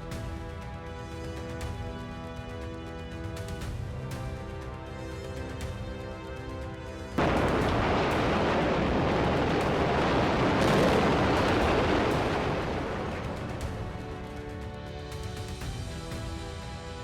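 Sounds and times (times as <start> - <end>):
music: 0.0 - 17.0
loud roar of noise: 7.2 - 13.8.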